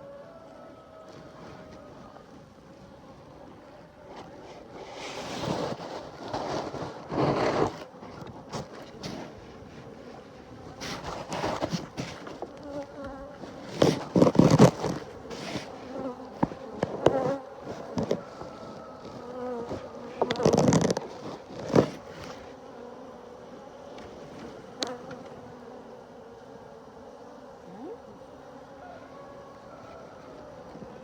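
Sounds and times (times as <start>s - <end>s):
honeybees buzzing: 0.0s - 31.0s
rustling and handling noise: 4.1s - 22.6s.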